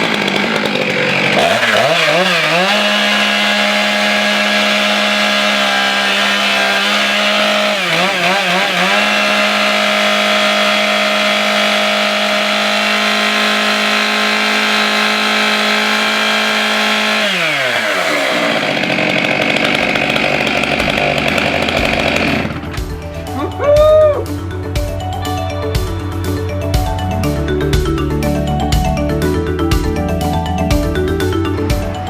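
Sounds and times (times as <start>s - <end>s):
chainsaw engine revving: 0.0s - 23.4s.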